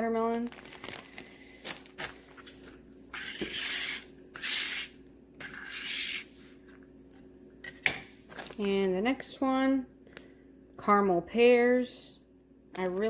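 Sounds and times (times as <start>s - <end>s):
plastic packaging rustling: 0.3s - 4.0s.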